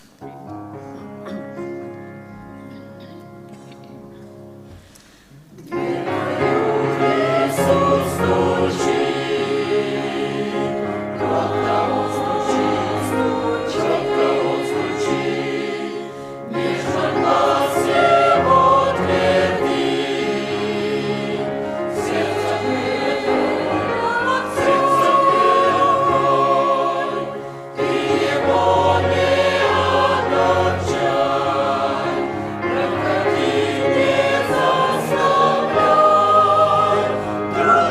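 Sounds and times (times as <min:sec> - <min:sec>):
church choir singing a hymn: 0:05.7 - 0:37.9.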